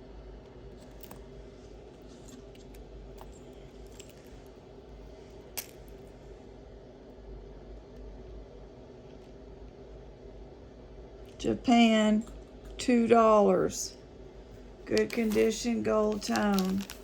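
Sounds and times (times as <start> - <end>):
low room hum: 0.0 - 17.0
jewelry clicking and clinking: 2.1 - 4.7, 5.3 - 6.1, 14.9 - 17.0.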